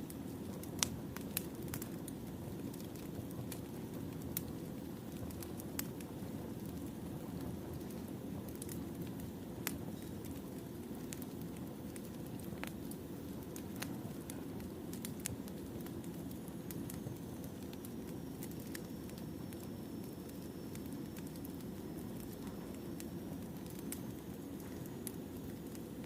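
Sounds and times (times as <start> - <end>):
fire popping and crackling: 0.0 - 26.0
low rumble of flames: 0.0 - 26.0.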